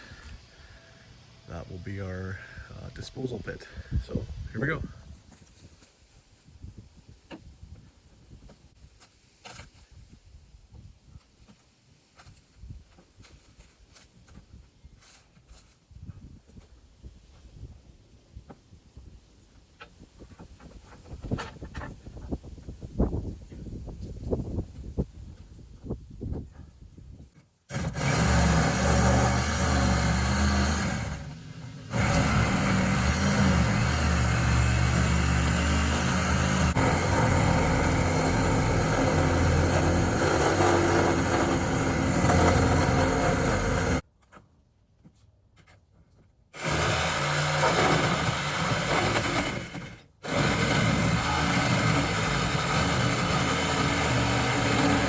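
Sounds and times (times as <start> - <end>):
power saw cutting plywood: 27.7 - 44.0, 46.6 - 55.0.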